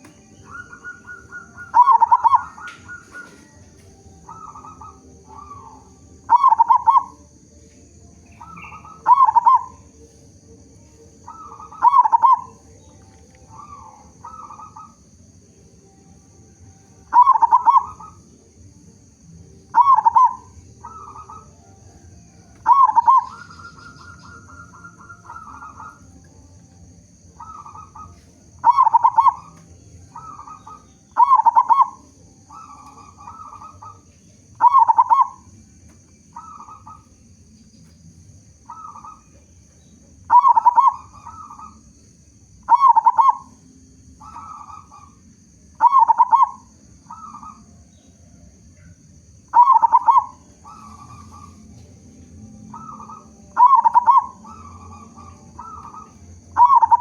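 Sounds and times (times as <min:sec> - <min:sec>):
rapid even bird trill: 0:00.0 - 0:07.2, 0:19.5 - 0:35.6, 0:36.3 - 0:37.5, 0:38.6 - 0:41.9, 0:49.4 - 0:51.7, 0:52.7 - 0:57.0
dove cooing: 0:00.0 - 0:37.4, 0:38.6 - 0:42.0, 0:42.6 - 0:57.0.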